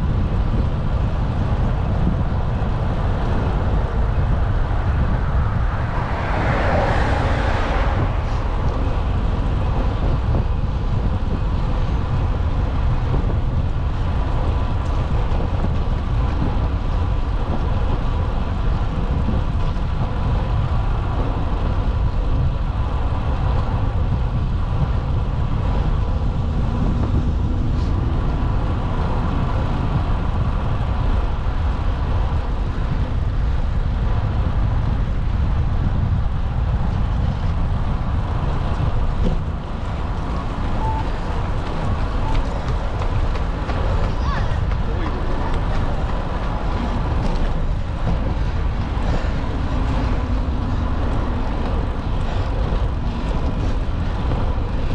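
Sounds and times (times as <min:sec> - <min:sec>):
road traffic noise: 0:00.0 - 0:54.9
wind rumble on microphone: 0:00.0 - 0:54.9
vehicle passing: 0:03.4 - 0:10.1, 0:25.6 - 0:31.2.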